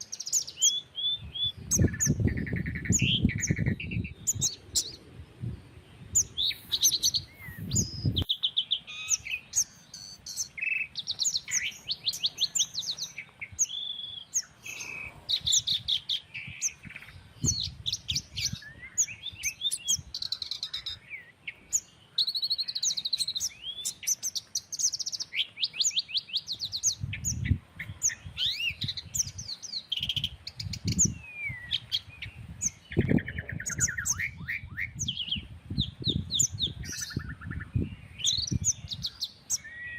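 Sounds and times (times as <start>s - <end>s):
songbirds chirping and trilling: 0.0s - 39.9s
wind buffeting microphone: 0.4s - 8.4s, 14.6s - 21.0s, 26.5s - 39.5s.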